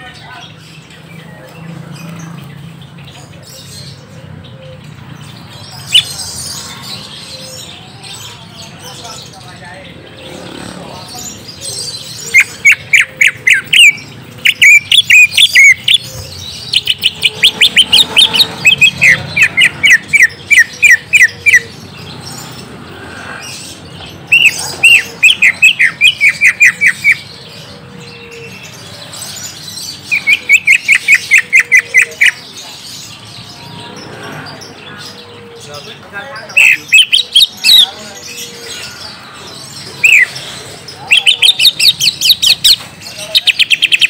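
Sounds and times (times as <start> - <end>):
bird chirping rapidly: 0.0 - 44.0.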